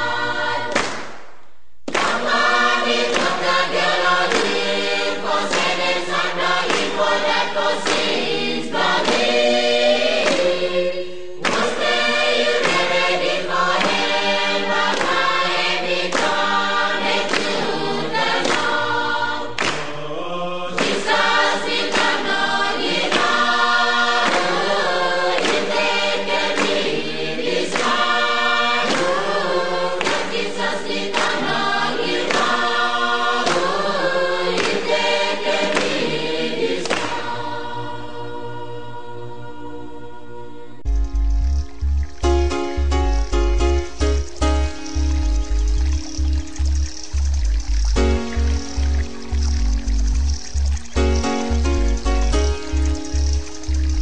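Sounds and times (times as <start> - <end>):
choir singing in harmony: 0.0 - 1.2, 1.9 - 40.9.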